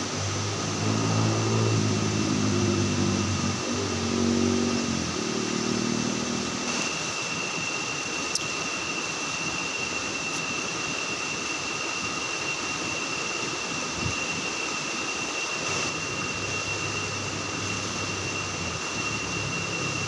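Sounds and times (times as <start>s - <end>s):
even rushing noise: 0.0s - 8.3s, 13.4s - 20.0s
high-pitched drone: 0.0s - 20.0s.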